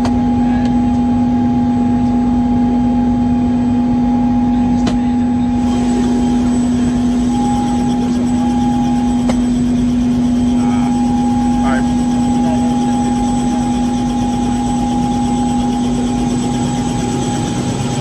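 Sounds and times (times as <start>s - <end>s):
helicopter cabin drone: 0.0s - 18.0s
high turbine whine: 5.2s - 18.0s.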